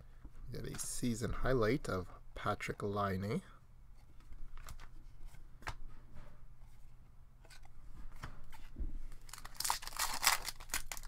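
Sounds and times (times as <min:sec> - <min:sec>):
foil wrapper crinkling: 0:09.2 - 0:11.0.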